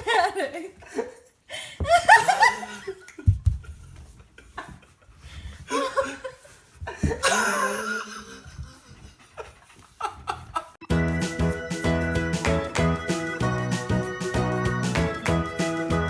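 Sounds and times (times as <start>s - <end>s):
people laughing: 0.0s - 1.2s, 1.8s - 5.1s, 5.7s - 10.8s.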